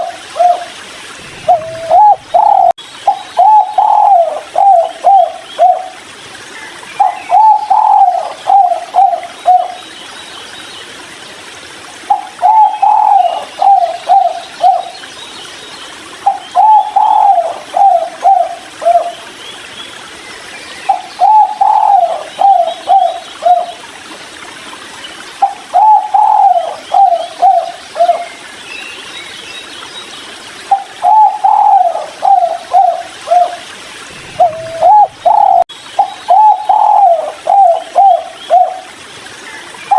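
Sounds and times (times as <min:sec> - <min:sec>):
dove cooing: 0:00.0 - 0:06.0, 0:07.0 - 0:09.8, 0:12.1 - 0:14.9, 0:16.3 - 0:19.1, 0:21.2 - 0:23.7, 0:25.4 - 0:28.2, 0:30.7 - 0:38.9.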